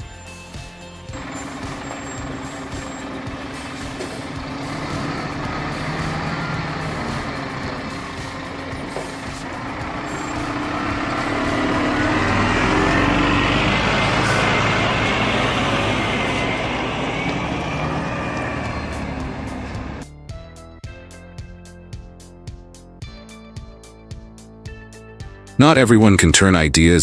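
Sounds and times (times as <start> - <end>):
heavy truck engine running: 0.0 - 20.0.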